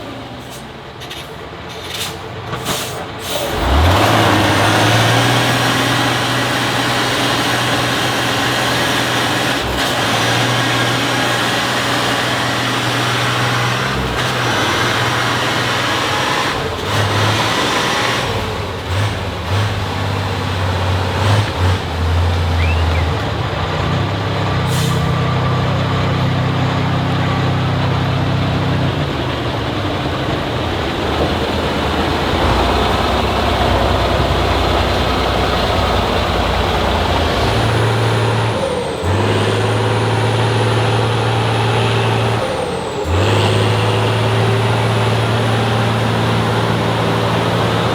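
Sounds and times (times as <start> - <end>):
diesel truck engines under load: 0.0 - 47.9
air brake hisses: 0.4 - 3.6, 24.7 - 25.2.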